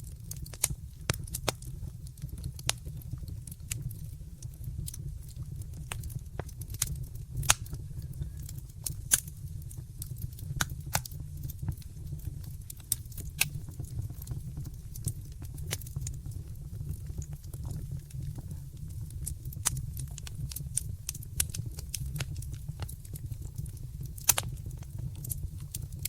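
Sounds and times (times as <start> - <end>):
low rumble of flames: 0.0 - 26.0
wood fire crackling: 0.0 - 26.0.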